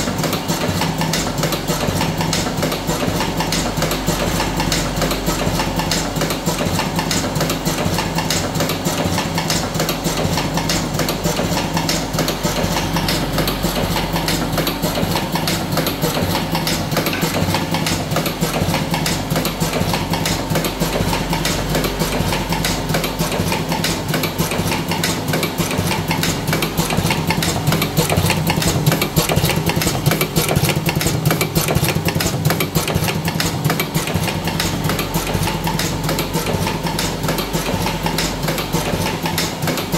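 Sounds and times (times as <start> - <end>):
fast mechanical clatter: 0.0 - 39.9
machine motor hum: 0.0 - 39.9.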